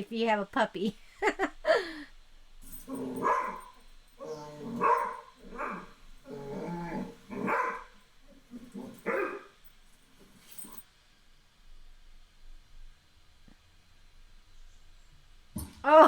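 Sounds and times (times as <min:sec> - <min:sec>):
dog barking and grumbling: 0:02.7 - 0:09.6.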